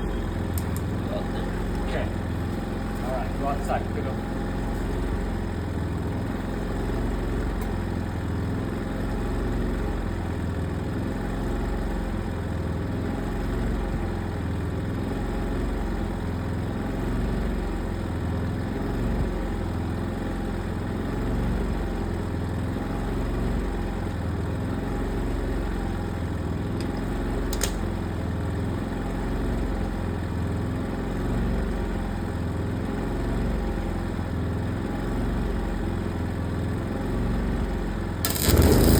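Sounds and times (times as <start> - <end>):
engine idling: 0.0 - 9.2.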